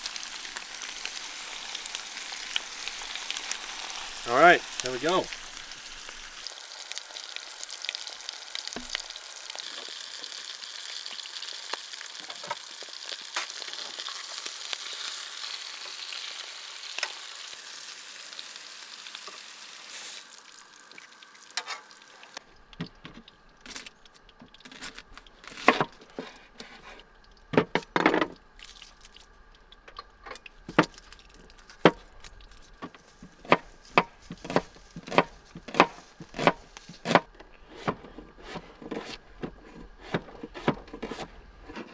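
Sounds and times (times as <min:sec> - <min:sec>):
fish sizzling in a pan: 0:00.0 - 0:22.4.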